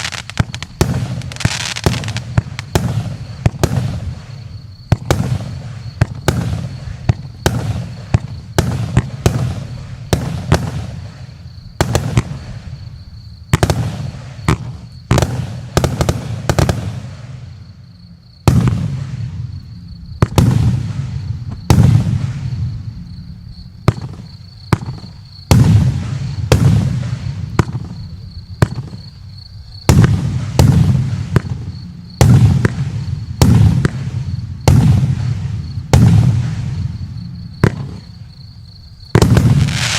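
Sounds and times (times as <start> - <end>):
fireworks bangs: 0.0 - 17.6, 18.4 - 19.6, 20.2 - 23.0, 23.8 - 29.2, 29.8 - 38.3, 39.0 - 39.9.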